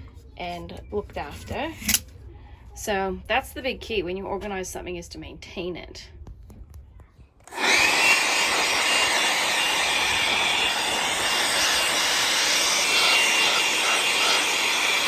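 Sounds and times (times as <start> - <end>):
power tool motor whining: 7.4 - 15.0.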